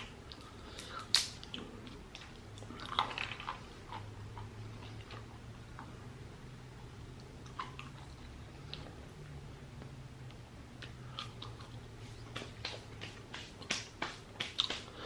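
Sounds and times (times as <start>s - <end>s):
mouth chewing food: 0.0s - 6.1s, 7.1s - 12.9s
faint low hum: 0.0s - 15.0s.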